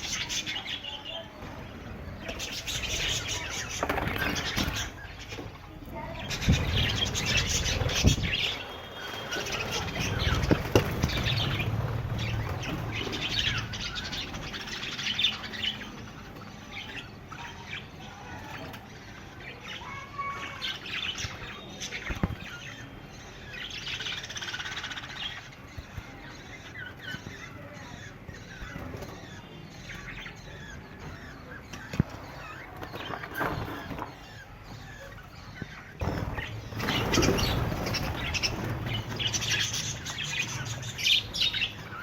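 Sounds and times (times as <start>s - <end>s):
budgerigars chirping and chattering: 0.0s - 42.0s.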